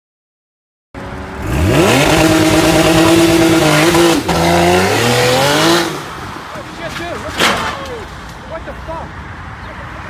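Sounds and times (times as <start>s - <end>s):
car engine accelerating hard: 1.4s - 6.4s.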